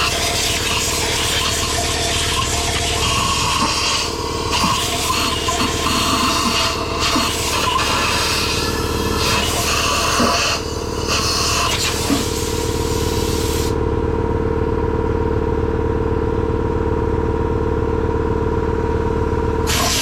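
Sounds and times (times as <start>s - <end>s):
pressure washer humming: 0.0s - 13.8s, 19.7s - 20.0s
pressure washer spraying hiss: 3.1s - 13.8s, 19.7s - 20.0s.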